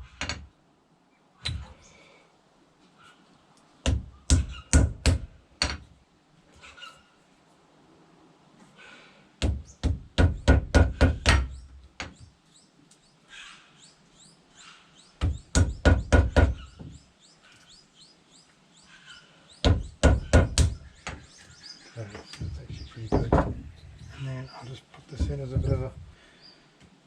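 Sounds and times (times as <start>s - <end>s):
faint bird chirps: 6.6s - 7.3s
rapid knocking on wood: 22.2s - 23.7s.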